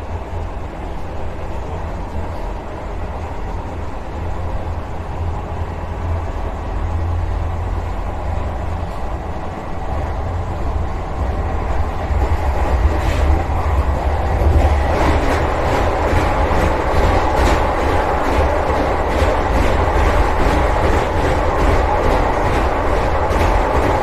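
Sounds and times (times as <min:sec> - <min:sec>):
train low rumble: 0:00.0 - 0:24.0
wheels clattering over rails: 0:11.2 - 0:24.0.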